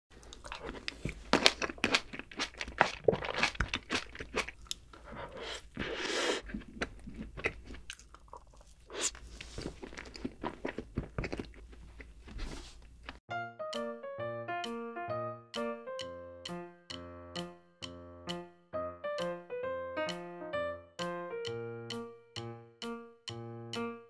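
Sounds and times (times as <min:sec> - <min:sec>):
crunching and chewing food: 0:00.1 - 0:13.2.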